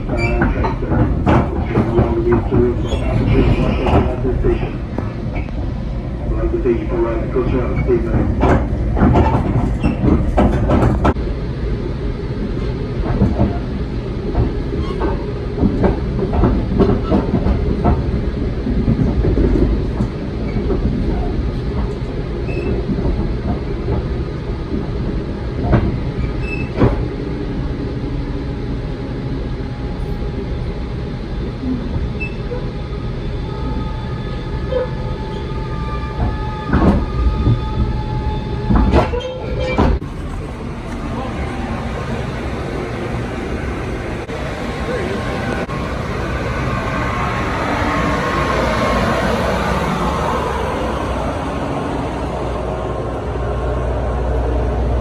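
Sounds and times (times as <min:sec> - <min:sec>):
rail clicks and rattles: 0:00.0 - 0:11.3, 0:12.4 - 0:27.2, 0:38.6 - 0:55.0
rail car rumble: 0:00.0 - 0:55.0.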